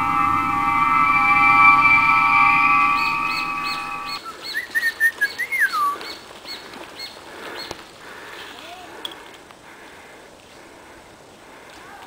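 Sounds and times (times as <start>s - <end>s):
synth music: 0.0s - 4.2s.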